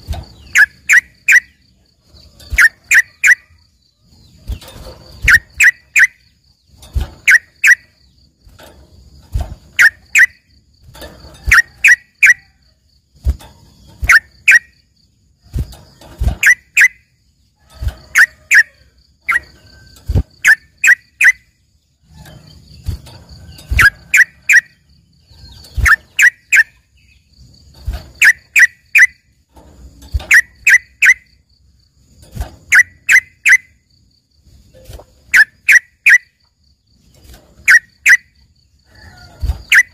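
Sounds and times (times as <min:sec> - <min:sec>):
bird singing sharp notes: 0:00.4 - 0:01.6.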